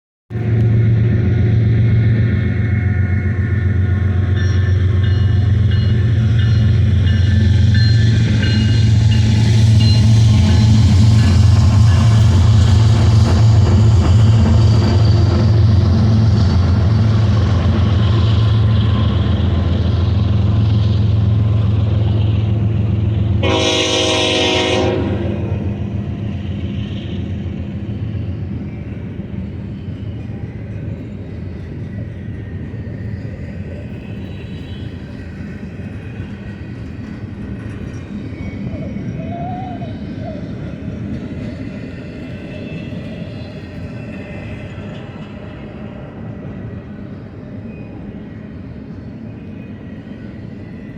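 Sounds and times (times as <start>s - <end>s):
diesel locomotive engine drone: 0.3s - 50.9s
train wheels on rails: 0.3s - 50.9s
train horn blast: 23.3s - 26.0s.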